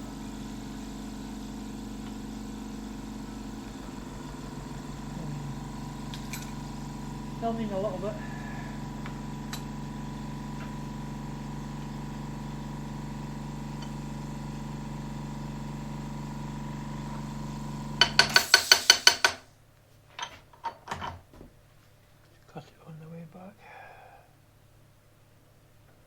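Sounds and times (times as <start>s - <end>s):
milling machine motor humming: 0.0s - 19.2s.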